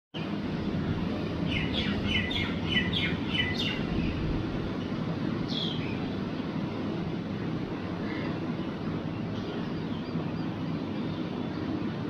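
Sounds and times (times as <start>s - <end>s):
low background hum: 0.2s - 12.0s
bird chirping: 1.5s - 4.2s, 5.5s - 6.0s.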